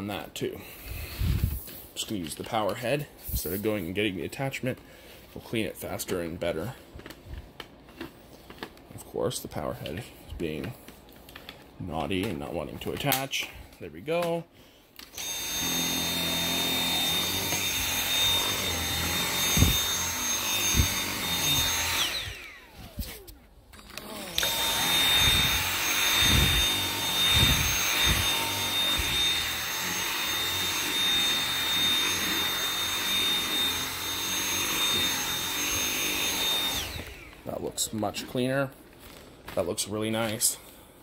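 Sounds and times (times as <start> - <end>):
cordless vacuum whining: 0.2 - 4.9, 15.0 - 38.4.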